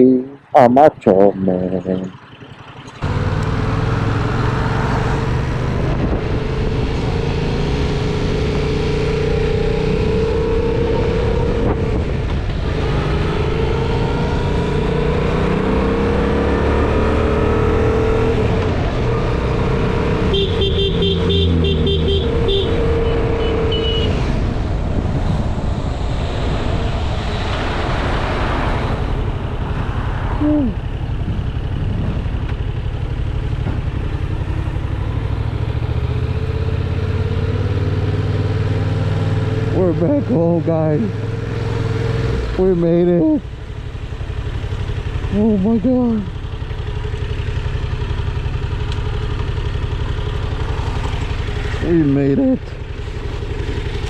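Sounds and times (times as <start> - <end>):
motorcycle engine revving: 1.6 - 54.0
wind rushing over microphone: 5.2 - 7.9, 24.0 - 32.5
pulsing horn-like beep: 20.3 - 24.2.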